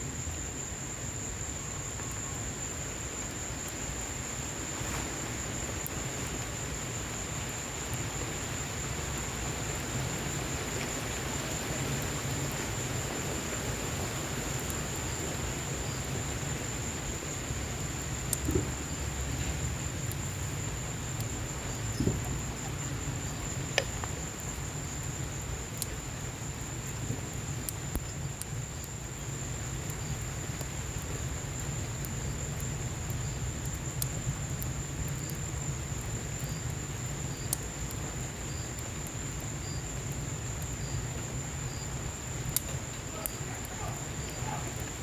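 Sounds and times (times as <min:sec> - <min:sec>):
rain rushing: 0:00.0 - 0:45.0
wood fire crackling and popping: 0:00.2 - 0:45.0.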